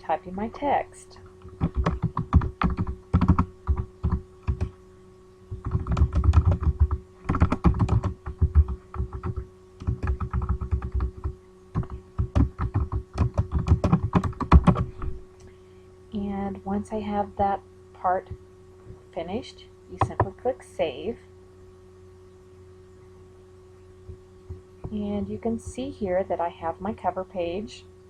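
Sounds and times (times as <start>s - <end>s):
typing on computer keyboard: 1.6s - 4.7s, 5.6s - 14.8s.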